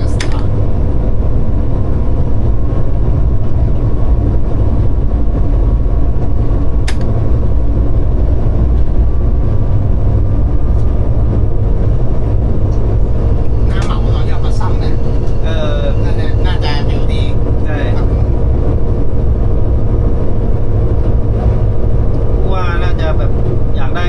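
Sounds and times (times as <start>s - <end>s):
diesel locomotive rumble: 0.0s - 24.0s
faint steady hum: 0.0s - 24.0s
sharp click: 6.8s - 7.1s.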